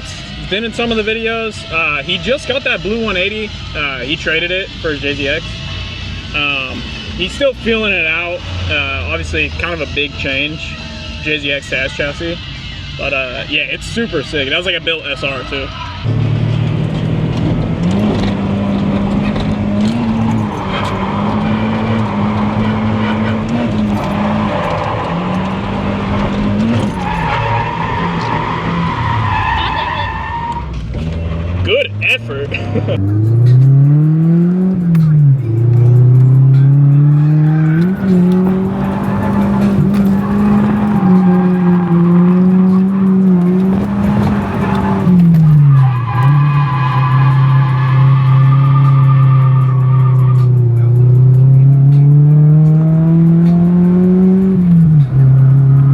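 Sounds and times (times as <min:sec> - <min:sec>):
car engine at high revs: 0:00.0 - 0:12.1, 0:16.0 - 0:55.9
tyre squeal: 0:19.1 - 0:31.8, 0:35.9 - 0:50.8.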